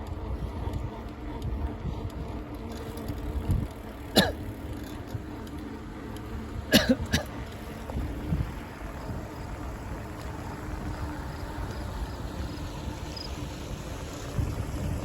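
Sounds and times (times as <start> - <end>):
bicycle ride rumble: 0.0 - 15.0
wind on microphone: 7.8 - 9.5, 10.6 - 15.0.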